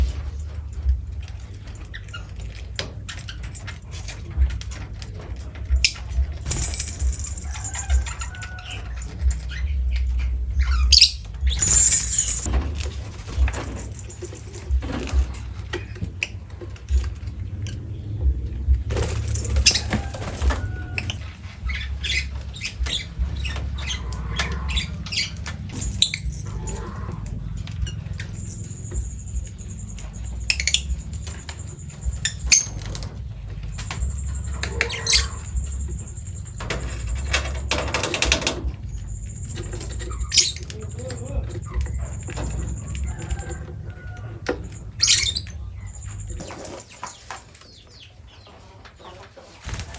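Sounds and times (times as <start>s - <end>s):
bird flapping wings: 18.8s - 23.8s, 49.6s - 49.9s.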